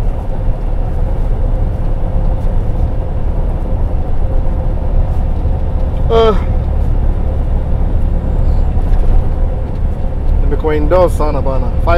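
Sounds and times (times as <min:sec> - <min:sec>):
diesel truck engine rumble: 0:00.0 - 0:11.9.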